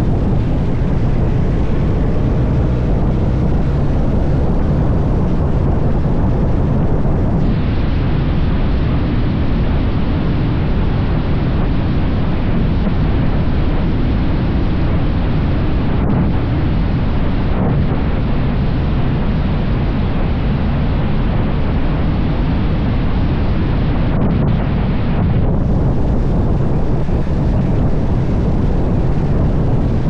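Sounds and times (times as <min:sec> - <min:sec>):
motorcycle engine: 0:00.0 - 0:07.4
road noise: 0:00.0 - 0:30.0
wind rushing over microphone: 0:00.0 - 0:30.0.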